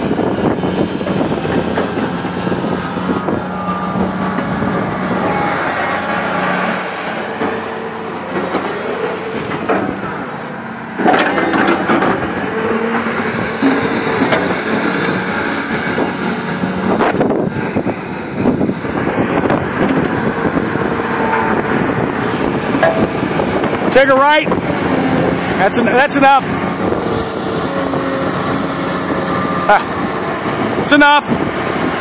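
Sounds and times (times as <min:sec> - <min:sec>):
excavator diesel engine running: 0:00.0 - 0:32.0
sharp metal clanks: 0:22.7 - 0:23.3.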